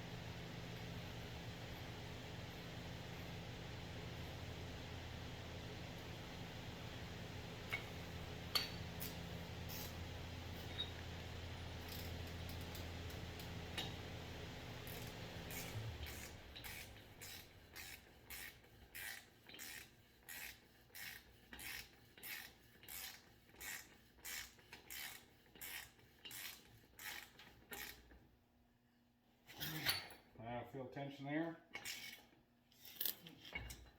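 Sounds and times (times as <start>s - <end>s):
low steady hum: 0.0s - 18.4s
ratchet wrench ratcheting: 14.9s - 28.1s.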